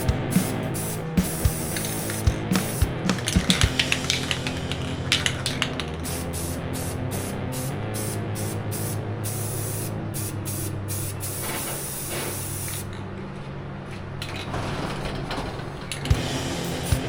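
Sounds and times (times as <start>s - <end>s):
steady low hum: 0.0s - 8.3s, 16.1s - 17.0s
spray paint hiss: 0.0s - 12.9s.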